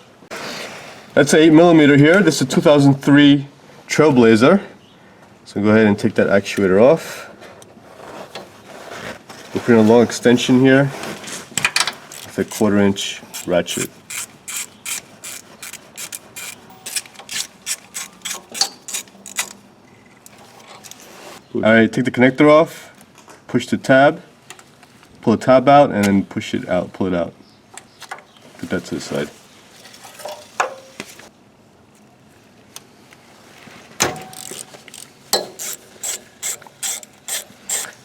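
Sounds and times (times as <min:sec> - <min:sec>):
ratchet clicking: 0:12.1 - 0:12.7, 0:13.3 - 0:19.6, 0:34.1 - 0:38.0.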